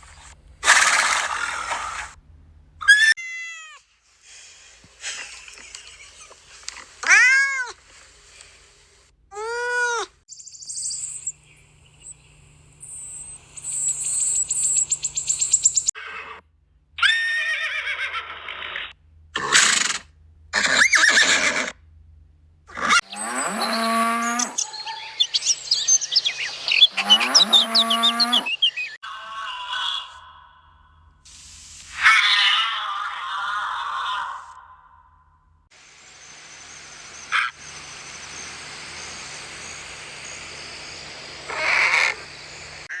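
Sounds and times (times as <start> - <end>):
animal calls: 0.1 - 2.2, 2.8 - 3.8, 17.0 - 21.8, 22.7 - 31.0, 31.9 - 35.1, 36.2 - 43.0.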